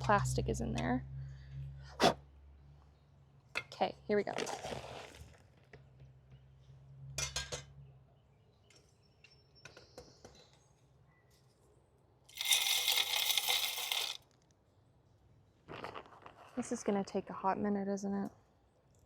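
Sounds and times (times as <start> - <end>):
seed pouring into feeder: 12.3 - 14.2
seed clicking: 12.4 - 14.2.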